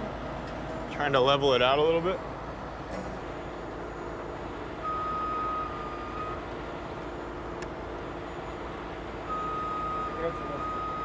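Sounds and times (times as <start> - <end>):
diesel engine running: 0.0 - 11.0
truck reversing alarm: 2.9 - 11.0.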